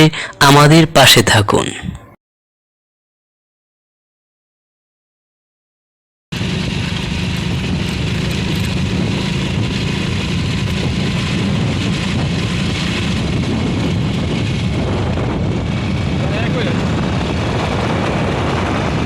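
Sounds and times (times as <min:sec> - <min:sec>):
vehicle engine running: 0:06.4 - 0:18.6.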